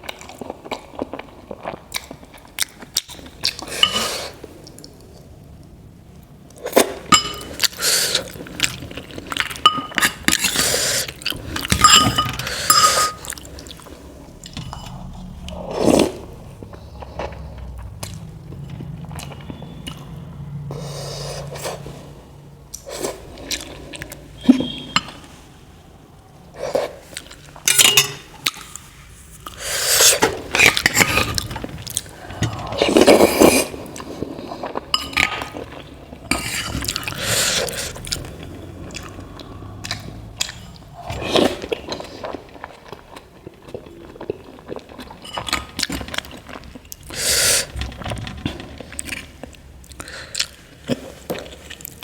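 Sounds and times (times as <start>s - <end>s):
cutlery clinking on a plate: 7.1s - 7.6s, 11.7s - 13.3s, 27.7s - 28.3s
close-up chewing: 30.4s - 52.0s.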